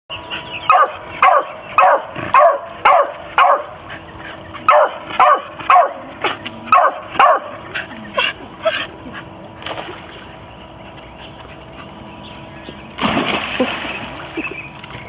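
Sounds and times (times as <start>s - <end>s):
dog barking: 0.7s - 3.8s, 4.7s - 6.0s, 6.7s - 7.5s.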